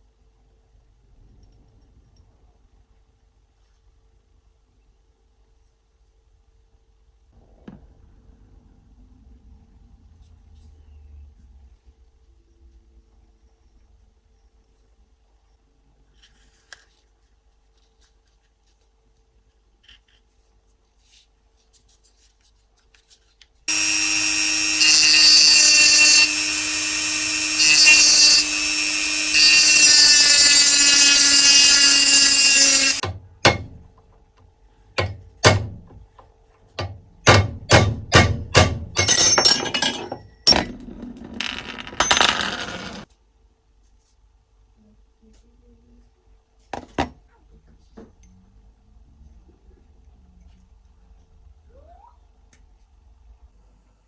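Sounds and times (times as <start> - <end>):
power tool motor running: 23.7 - 33.0, 38.6 - 40.0.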